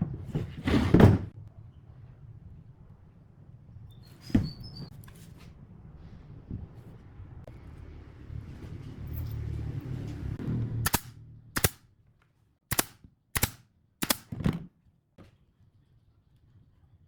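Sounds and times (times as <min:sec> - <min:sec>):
nail gun firing into wood: 0:10.9 - 0:11.8, 0:12.7 - 0:14.4.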